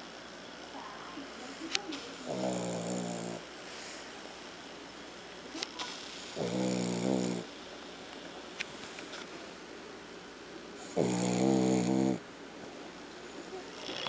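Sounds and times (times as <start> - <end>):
dog snoring: 2.2 - 3.5, 6.2 - 7.5, 10.8 - 12.2, 13.7 - 14.0.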